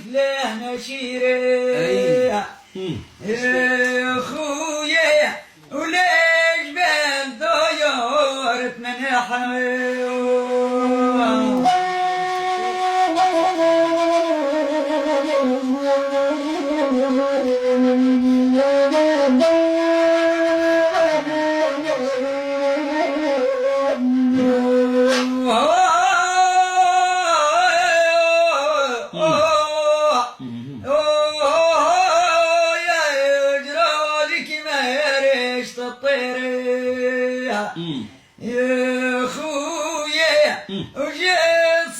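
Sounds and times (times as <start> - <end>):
flute-like wind instrument melody: 1.7 - 2.4, 9.8 - 28.3, 29.2 - 29.6.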